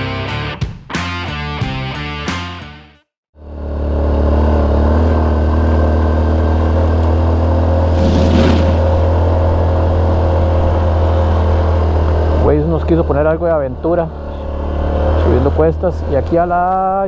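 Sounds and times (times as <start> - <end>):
music: 0.0 - 3.1
motorcycle engine cruising: 3.4 - 16.9
brief rush of noise: 7.8 - 9.3.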